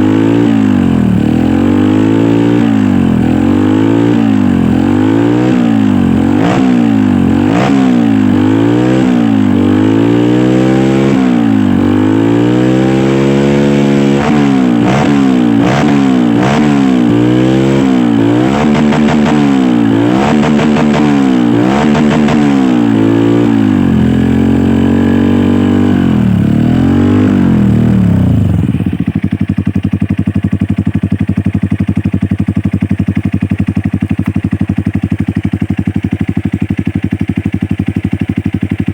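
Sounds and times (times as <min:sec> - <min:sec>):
dirt bike engine revving: 0:00.0 - 0:29.5.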